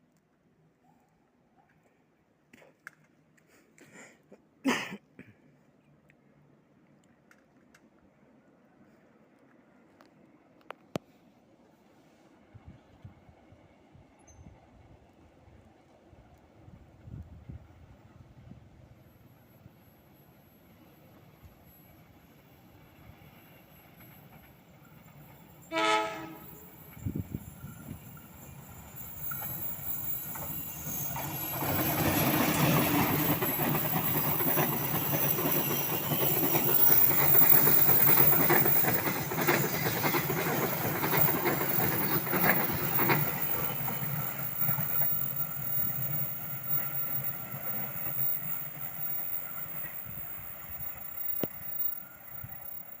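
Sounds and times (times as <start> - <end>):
train horn blast: 25.7 - 26.6
train wheels clattering over rail joints: 29.3 - 52.9.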